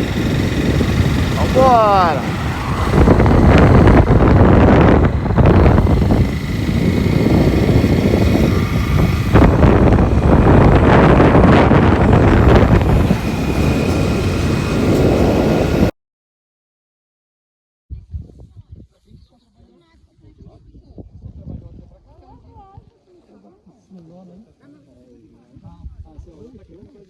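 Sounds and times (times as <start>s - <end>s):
vehicle running: 0.0s - 15.9s
wind buffeting microphone: 0.0s - 15.9s, 20.2s - 22.9s.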